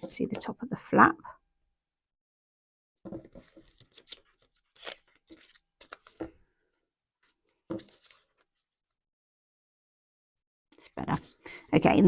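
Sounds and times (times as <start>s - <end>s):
paper rustling and tapping: 3.1s - 6.4s.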